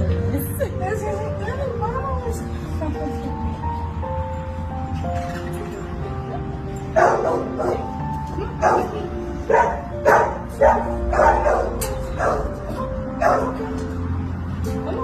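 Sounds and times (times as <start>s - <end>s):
music with long held notes: 0.0s - 15.0s
dog barking: 7.0s - 8.0s, 8.6s - 12.6s, 13.2s - 13.7s.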